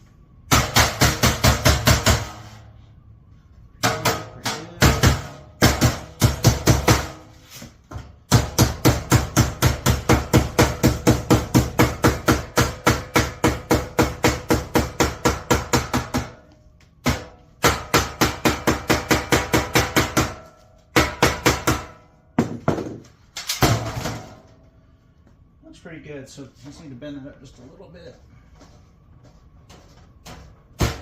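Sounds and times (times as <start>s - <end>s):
hammer striking sheet metal: 0.4s - 2.7s, 3.7s - 7.4s, 8.0s - 24.6s, 30.2s - 31.0s.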